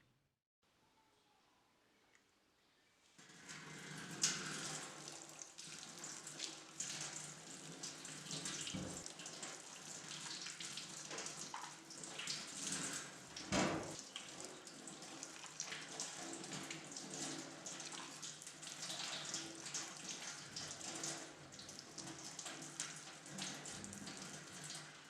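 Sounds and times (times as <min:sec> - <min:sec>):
tap running into sink: 0:08.4 - 0:09.2, 0:13.4 - 0:14.1.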